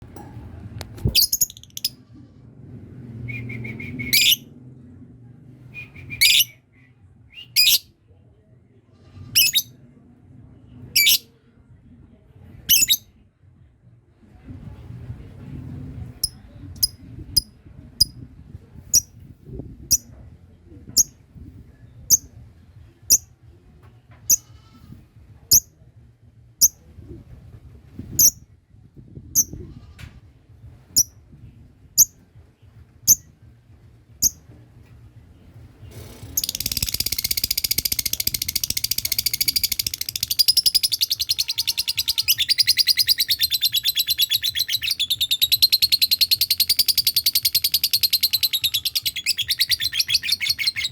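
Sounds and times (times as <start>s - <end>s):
bird sharp high chirps: 1.0s - 1.9s, 3.6s - 4.4s, 6.0s - 6.6s, 7.5s - 7.9s, 36.4s - 50.9s
bird rapid chattering trill: 36.4s - 50.9s.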